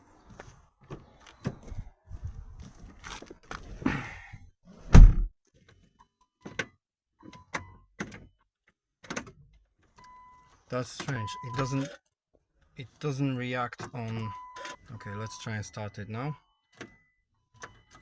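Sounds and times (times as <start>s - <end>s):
clunks and knocks: 4.9s - 5.3s
heavy thump: 4.9s - 5.3s.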